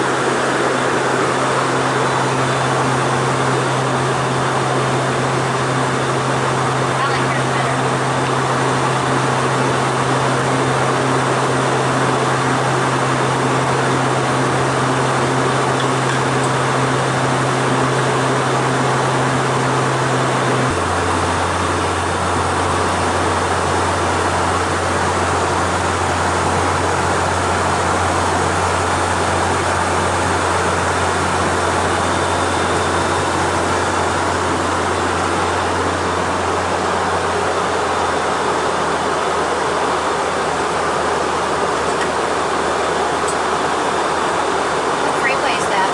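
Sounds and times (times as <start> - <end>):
airflow rush in jet cabin: 0.0 - 45.9.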